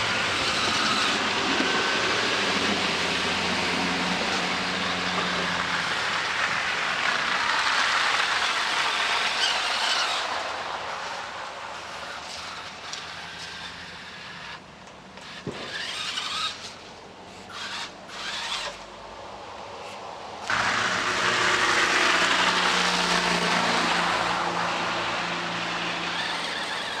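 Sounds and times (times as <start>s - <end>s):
motor running with surges: 0.0s - 14.6s, 15.2s - 18.9s, 19.8s - 27.0s
loud steady rush with low hum: 15.4s - 27.0s.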